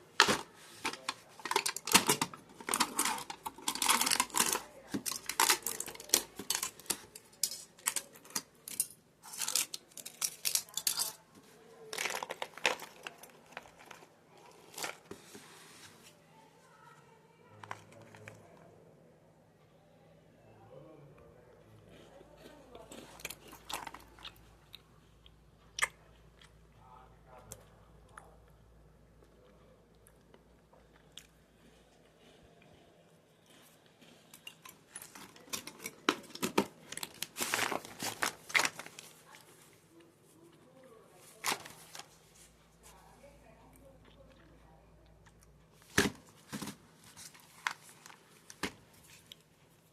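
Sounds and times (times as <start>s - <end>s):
plastic wrapper crinkling: 0.0s - 11.2s, 11.8s - 15.4s, 34.9s - 39.5s, 41.1s - 42.2s, 45.8s - 49.4s
biscuits crunching: 0.0s - 16.1s, 21.7s - 26.8s, 27.4s - 43.0s, 44.0s - 49.9s.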